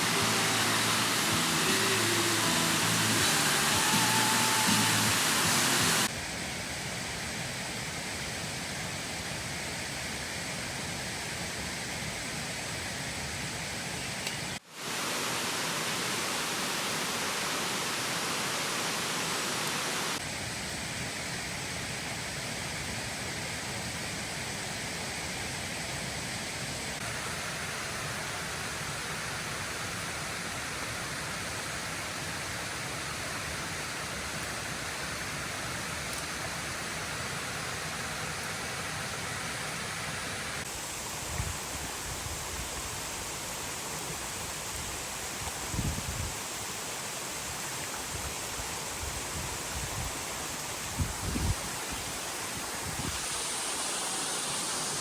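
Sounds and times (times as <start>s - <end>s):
falling water rushing: 0.0s - 6.2s, 14.6s - 20.2s, 27.0s - 55.0s.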